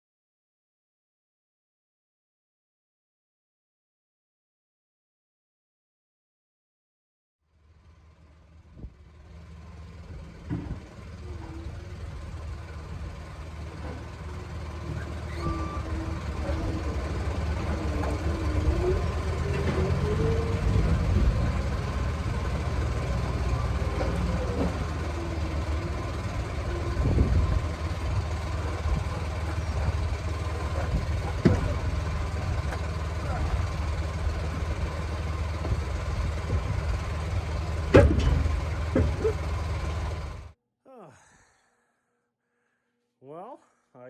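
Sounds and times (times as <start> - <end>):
heavy truck engine revving: 8.4 - 40.6.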